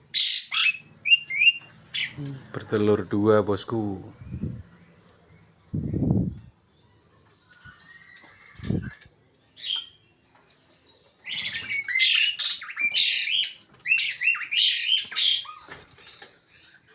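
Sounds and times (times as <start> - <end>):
starlings harsh chirps and squawks: 0.0 - 2.2, 7.3 - 16.3.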